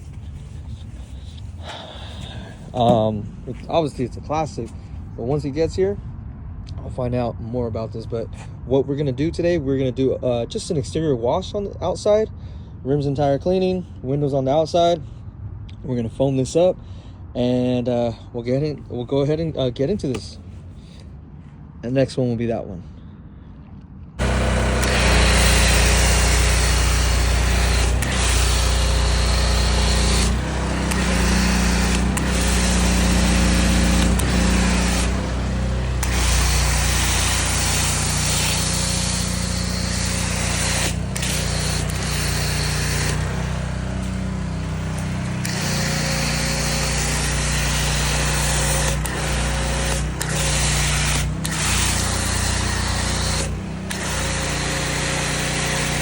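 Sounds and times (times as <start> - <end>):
pressure washer motor running: 0.0 - 3.2, 24.2 - 56.0
water spray hissing: 24.2 - 56.0.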